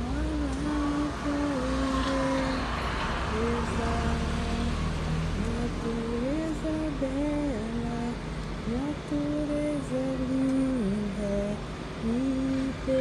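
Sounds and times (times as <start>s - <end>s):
low steady background rumble: 0.0s - 13.0s.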